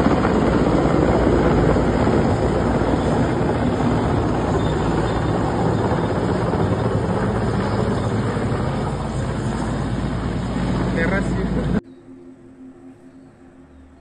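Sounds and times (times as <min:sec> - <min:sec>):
helicopter rotor and engine: 0:00.0 - 0:11.8.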